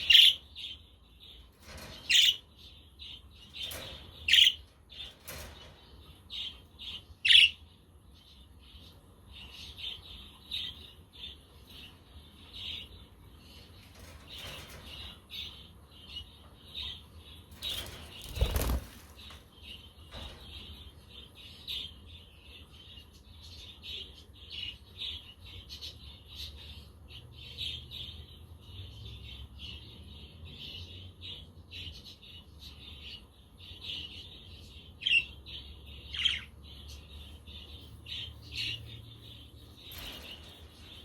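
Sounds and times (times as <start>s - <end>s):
budgerigars chirping and chattering: 0.0s - 2.5s, 3.1s - 5.8s, 6.4s - 7.6s, 23.7s - 40.9s.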